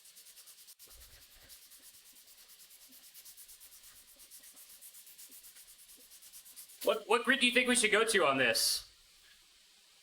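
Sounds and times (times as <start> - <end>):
sandpaper rubbing on steel blade: 0.0 - 7.0.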